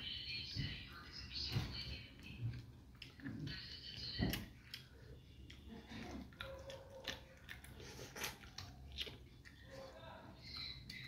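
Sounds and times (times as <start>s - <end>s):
person chewing with mouth smacks: 2.2s - 11.0s.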